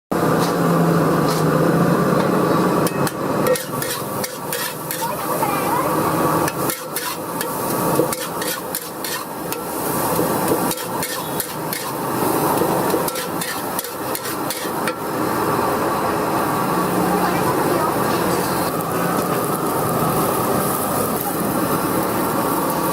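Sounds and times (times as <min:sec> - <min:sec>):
metal spatula clanking on wok: 0:02.2 - 0:05.2, 0:06.4 - 0:09.8, 0:10.5 - 0:12.0, 0:12.6 - 0:15.0.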